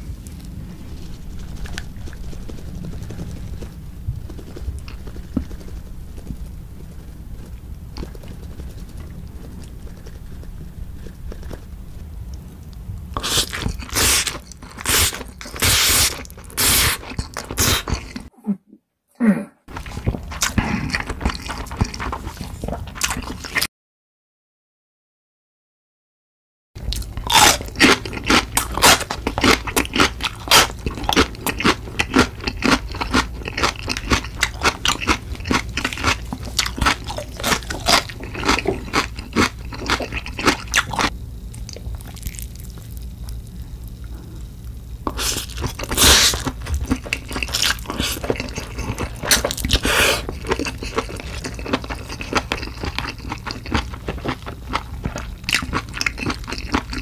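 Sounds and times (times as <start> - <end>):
crunching chili pepper: 12.3 - 18.3, 19.7 - 23.6, 26.9 - 57.0.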